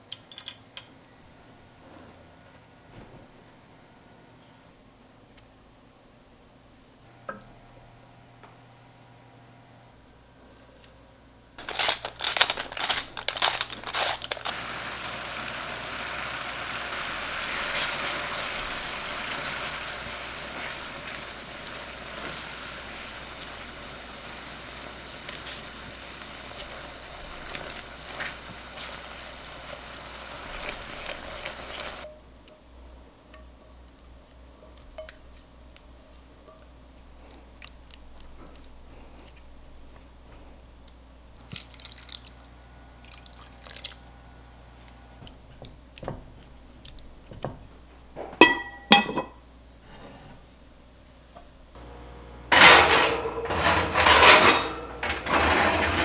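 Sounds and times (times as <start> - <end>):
food sizzling in a frying pan: 11.6 - 32.1.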